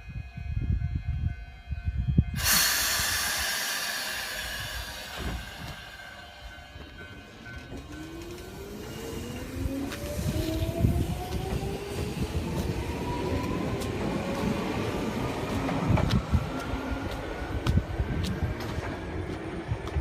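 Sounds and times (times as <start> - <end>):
train traction motor whine: 0.1 - 20.0
compressed air hissing: 2.4 - 6.5.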